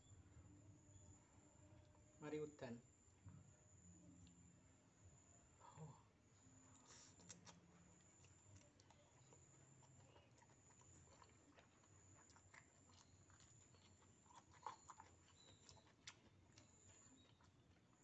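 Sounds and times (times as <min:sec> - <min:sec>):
chewing and slurping noodles: 0:06.7 - 0:18.0.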